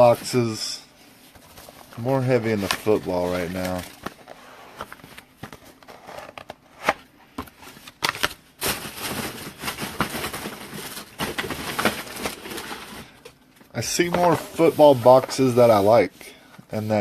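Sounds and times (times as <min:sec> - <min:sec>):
wrapper crinkling and tearing: 0:08.1 - 0:13.2.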